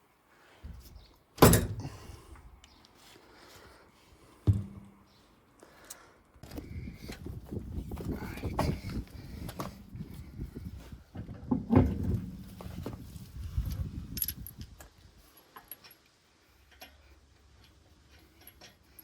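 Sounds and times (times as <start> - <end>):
loud thump: 4.5 - 4.9
small metallic clinks: 14.1 - 19.0.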